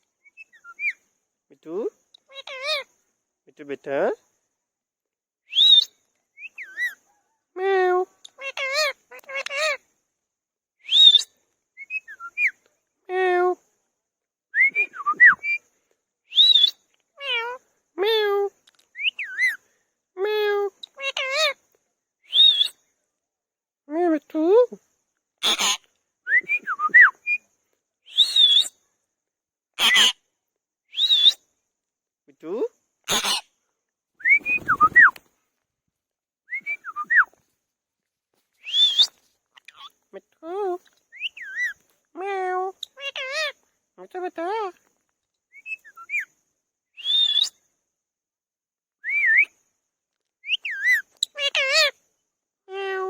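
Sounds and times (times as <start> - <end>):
parakeet whistling and calling: 0.3 - 1.0, 5.5 - 7.0, 10.9 - 12.5, 16.3 - 16.8, 22.3 - 22.8, 28.1 - 28.7, 29.8 - 30.2, 30.9 - 31.4, 34.2 - 35.2, 38.6 - 39.9, 41.2 - 41.8, 47.0 - 47.6, 50.4 - 51.6
parrot whistling: 34.2 - 35.1.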